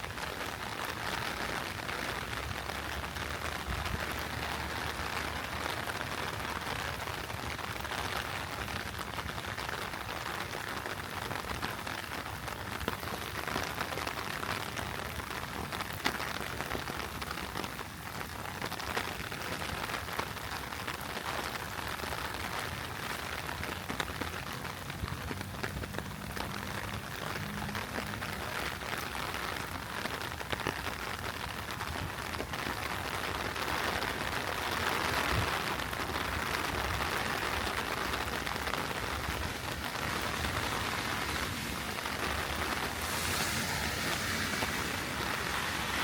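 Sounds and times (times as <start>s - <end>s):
heavy rain pouring: 0.0s - 46.0s
sharp raindrop ticks: 22.7s - 44.2s.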